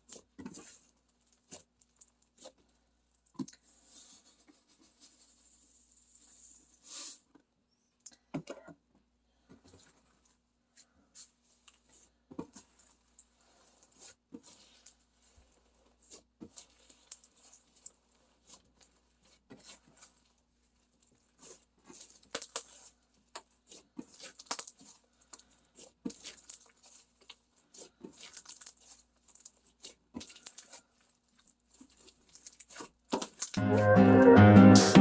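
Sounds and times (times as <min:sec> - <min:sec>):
slime squished by hand: 0:11.1 - 0:33.6
small crackles and pops: 0:16.1 - 0:33.6.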